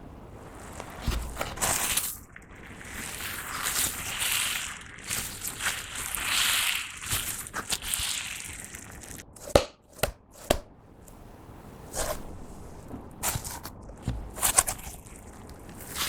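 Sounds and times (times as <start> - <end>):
slime wet crackling: 0.4 - 9.6, 13.2 - 16.0.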